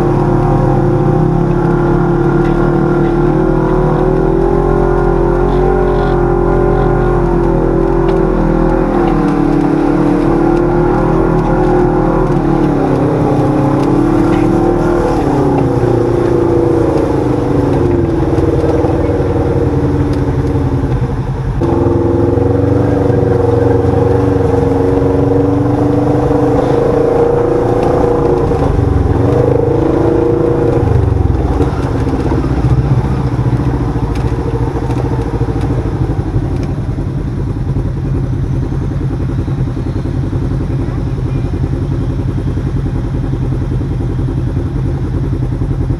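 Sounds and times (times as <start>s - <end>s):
vehicle engine revving: 0.0s - 45.9s.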